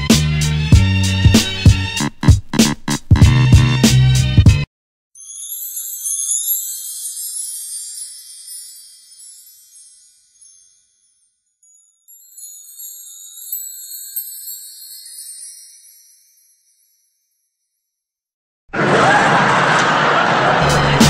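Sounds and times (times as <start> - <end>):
high tinkling chime shimmer: 5.2 - 18.1.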